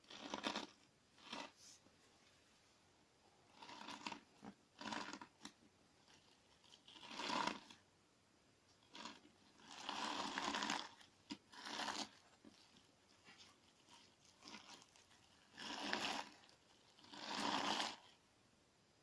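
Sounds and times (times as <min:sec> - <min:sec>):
crunchy slime being squished: 0:00.0 - 0:01.6, 0:08.8 - 0:18.1.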